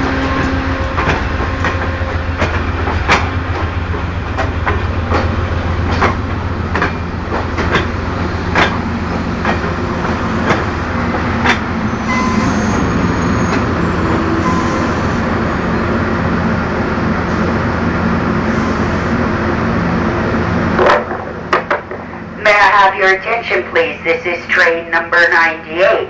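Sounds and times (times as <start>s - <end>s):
low train rumble: 0.0s - 26.0s
train wheels clicking over rail joints: 0.1s - 14.5s
brake squeal: 11.9s - 16.0s.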